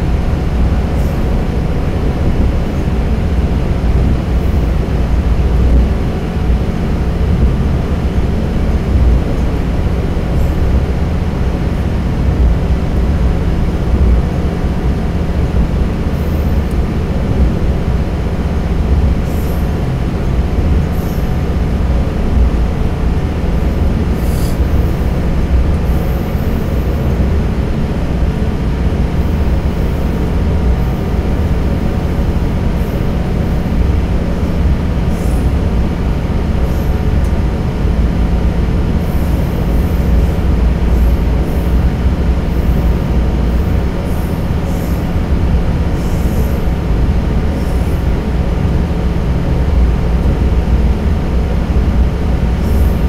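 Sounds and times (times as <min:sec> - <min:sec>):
railcar engine and wheels rumbling: 0:00.0 - 0:53.0
steady low hum: 0:00.0 - 0:53.0.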